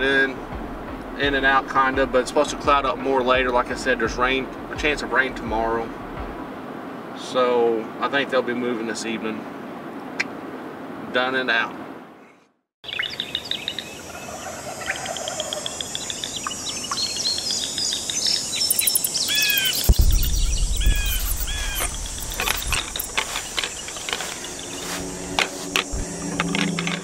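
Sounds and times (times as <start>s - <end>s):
low rumble: 0.0s - 6.6s, 19.8s - 27.0s
low thump: 0.5s - 6.5s, 19.8s - 24.2s
birds chirping: 12.2s - 27.0s.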